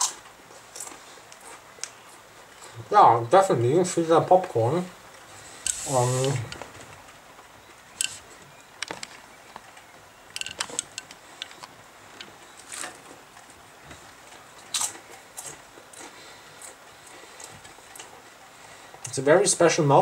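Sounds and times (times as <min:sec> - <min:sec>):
person chewing crunchy chips: 0:14.6 - 0:18.1.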